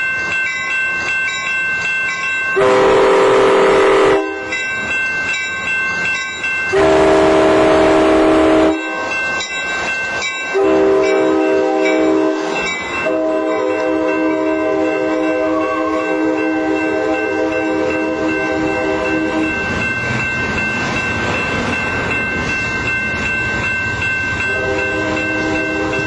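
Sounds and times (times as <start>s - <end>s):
locomotive horn blasts: 2.6s - 4.4s, 6.8s - 8.9s, 10.6s - 19.5s, 24.5s - 26.0s.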